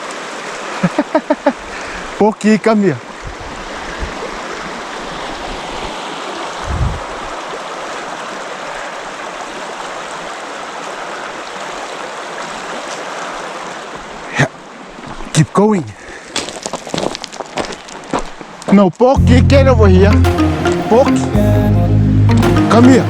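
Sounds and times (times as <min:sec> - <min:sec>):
river water flowing over rocks: 0:00.0 - 0:15.3.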